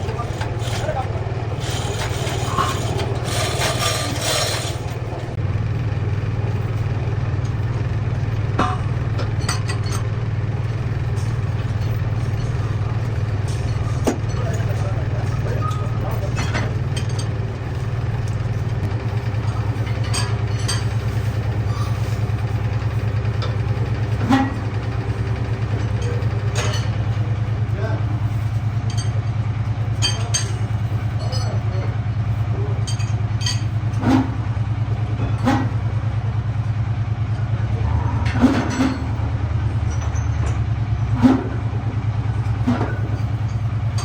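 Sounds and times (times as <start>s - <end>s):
harsh scraping of pipe cutting: 0.0s - 5.4s
low machine drone: 0.0s - 44.0s.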